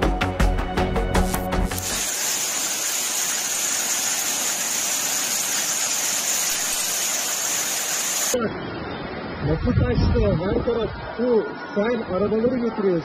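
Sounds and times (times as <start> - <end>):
torrential rain hiss: 1.7 - 8.4
floodwater rushing: 1.8 - 8.8.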